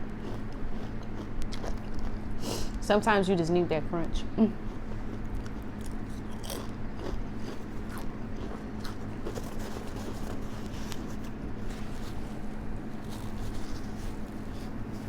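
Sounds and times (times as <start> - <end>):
fan humming: 0.0 - 15.0
crunching crispy chips: 5.0 - 15.0.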